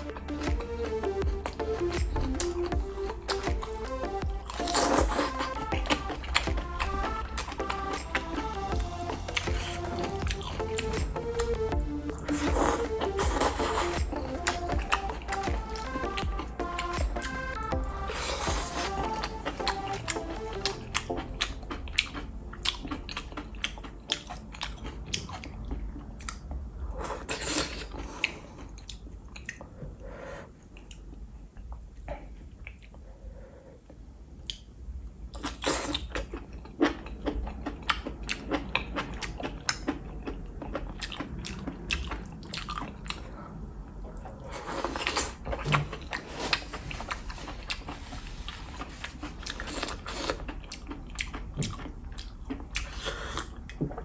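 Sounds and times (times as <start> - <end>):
person chewing wetly: 0.0 - 30.0, 30.6 - 33.1, 35.3 - 54.0
person slurping: 2.4 - 6.1, 6.9 - 22.8, 27.0 - 28.6, 44.3 - 50.5.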